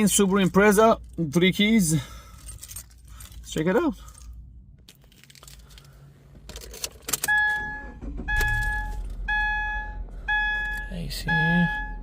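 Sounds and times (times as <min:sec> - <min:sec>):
car keys jangling: 0:00.0 - 0:09.3
two-tone car warning chime: 0:07.3 - 0:12.0.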